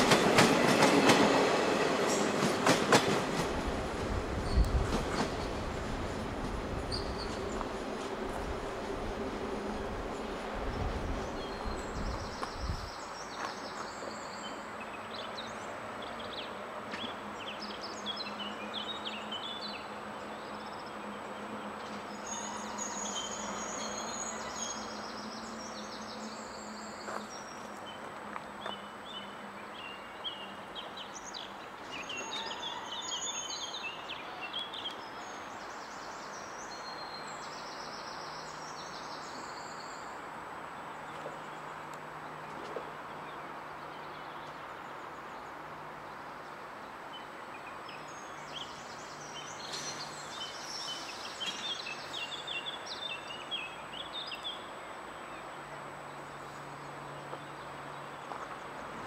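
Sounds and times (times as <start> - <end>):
background hiss: 33.0 - 59.0.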